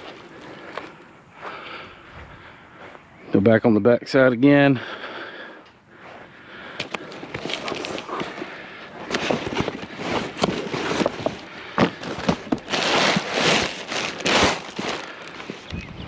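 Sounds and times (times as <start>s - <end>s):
rustling: 6.6s - 15.7s.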